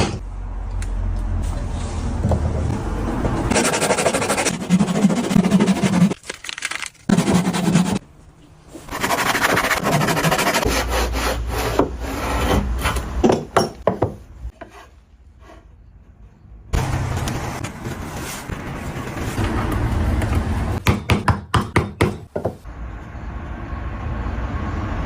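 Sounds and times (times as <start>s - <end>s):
hand tool scraping wood: 3.5s - 6.2s, 8.9s - 13.0s, 14.5s - 15.7s.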